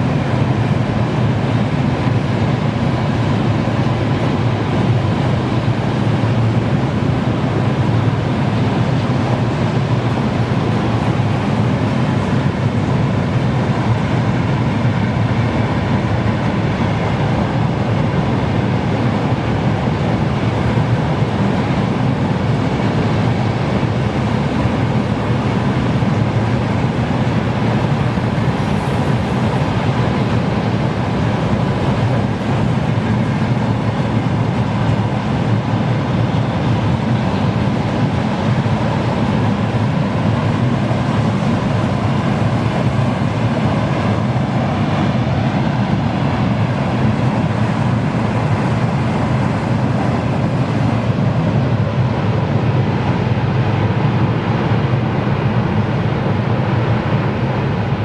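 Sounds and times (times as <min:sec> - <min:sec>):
freight train wheels rumbling on rails: 0:00.0 - 0:58.0
faint steady whine: 0:07.6 - 0:17.9, 0:18.7 - 0:43.7.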